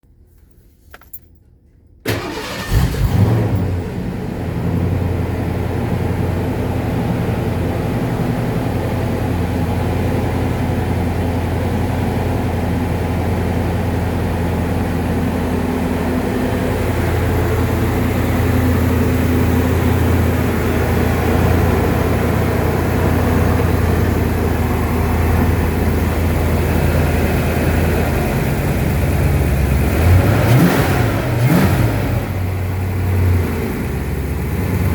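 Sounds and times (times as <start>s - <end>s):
car engine cranking: 2.0s - 4.4s, 15.2s - 34.9s
car engine idling: 2.0s - 34.9s.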